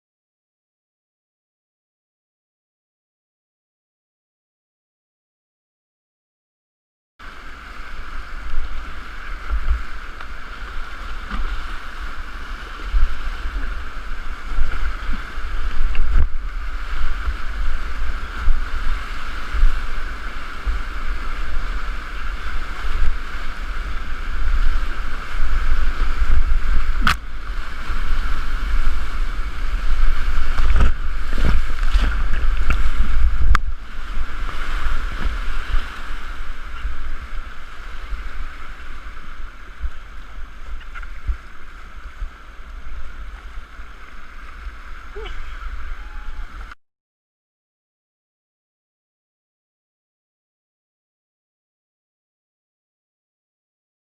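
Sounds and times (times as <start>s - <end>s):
rushing river whitewater: 7.2s - 46.8s
wind buffeting microphone: 7.3s - 46.8s.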